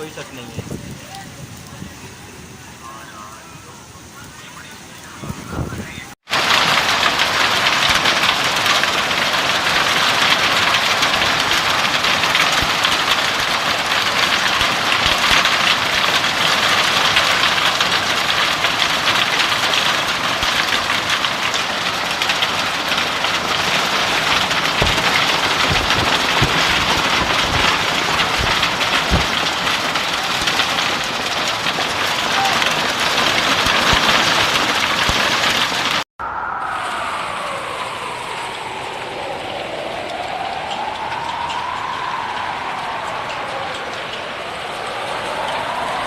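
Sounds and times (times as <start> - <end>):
rain and hail pelting: 0.0 - 36.1, 36.7 - 46.0
low thuds: 24.4 - 30.6.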